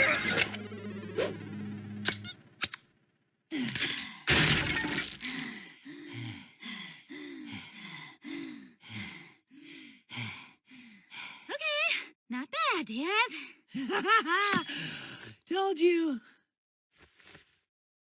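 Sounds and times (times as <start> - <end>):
loud crash and breaking: 3.8 - 5.3
person panting heavily: 5.2 - 11.5, 13.5 - 15.4.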